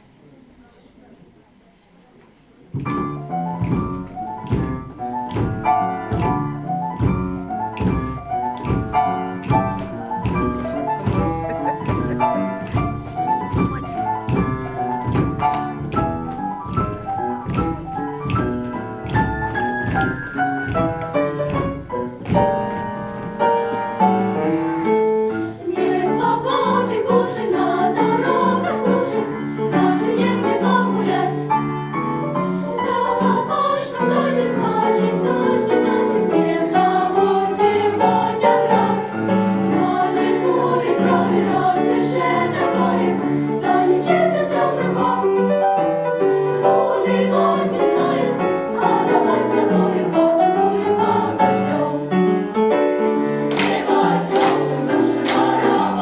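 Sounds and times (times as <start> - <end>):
boogie-woogie piano: 2.7 - 56.0
choir singing: 8.2 - 18.3, 24.0 - 45.8, 46.5 - 52.4, 53.3 - 56.0.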